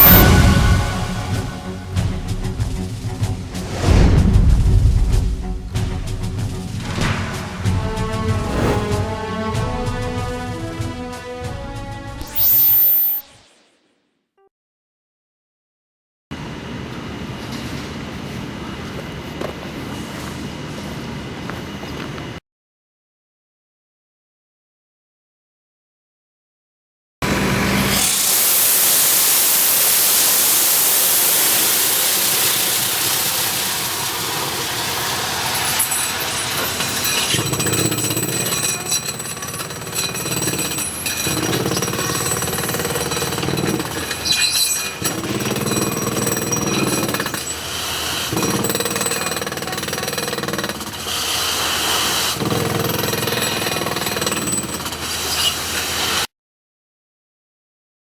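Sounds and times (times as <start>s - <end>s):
drilling rig hammering: 0.0s - 3.6s, 30.4s - 55.1s
drilling rig hissing: 0.0s - 3.6s, 27.3s - 37.4s.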